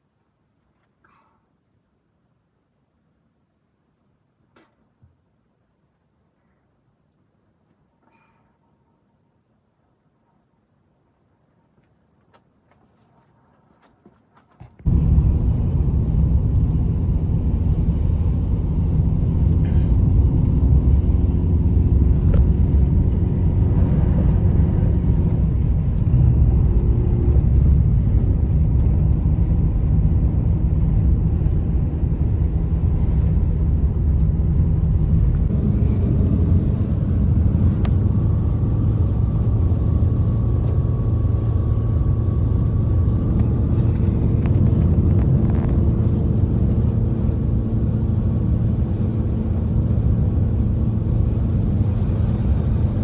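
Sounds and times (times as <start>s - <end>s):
loud low rumble: 14.9s - 53.0s.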